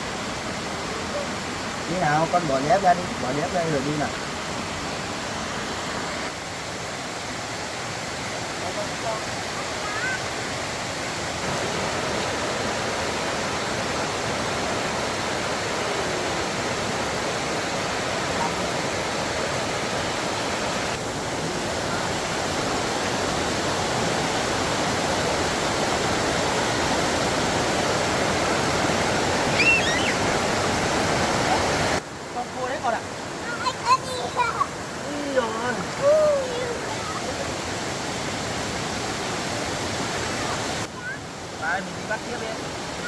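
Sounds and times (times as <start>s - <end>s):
heavy rain falling: 0.0s - 5.5s, 11.4s - 32.0s, 32.6s - 43.0s
faint high chirps: 29.5s - 30.3s.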